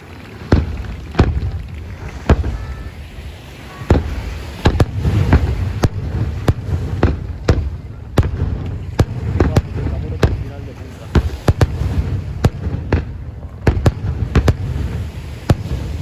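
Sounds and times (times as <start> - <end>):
fireworks bursting with bangs: 0.0 - 16.0
low rumble and echo: 0.1 - 16.0.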